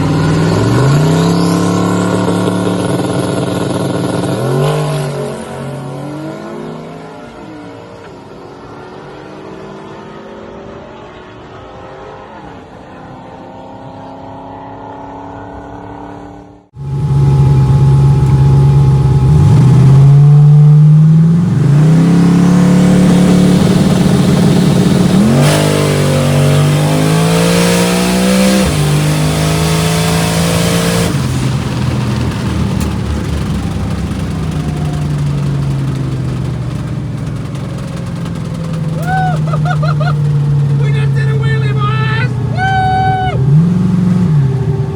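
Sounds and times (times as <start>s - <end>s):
engine accelerating at full throttle: 0.0s - 44.9s.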